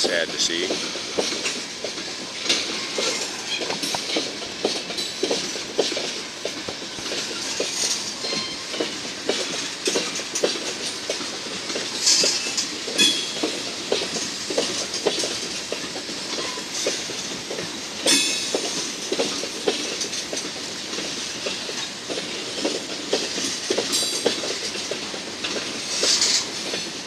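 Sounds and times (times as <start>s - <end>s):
train wheels clicking on rail joints: 0.0s - 27.0s
wheel squeals: 7.3s - 9.0s.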